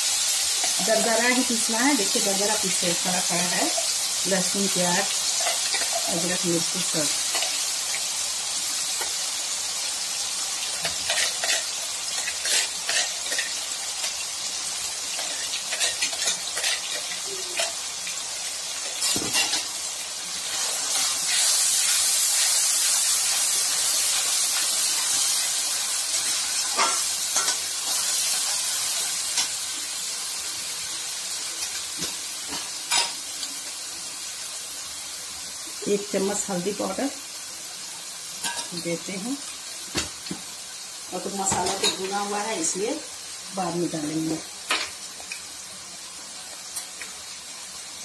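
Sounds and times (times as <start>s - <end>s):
paste sizzling in hot oil: 0.0s - 48.0s
steel spatula scraping a pan: 10.8s - 14.2s, 15.1s - 17.8s, 26.1s - 28.6s.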